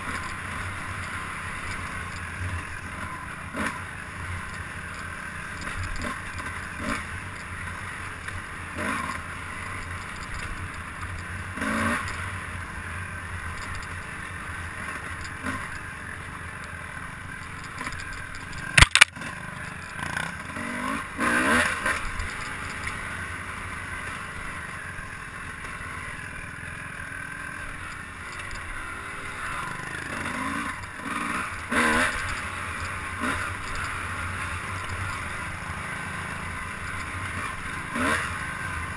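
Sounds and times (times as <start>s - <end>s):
rattle: 0.0s - 8.4s, 9.1s - 20.6s, 21.4s - 23.2s, 27.1s - 35.6s
vehicle engine running: 0.0s - 38.9s
wind: 0.0s - 38.9s
sharp click: 17.6s - 19.2s.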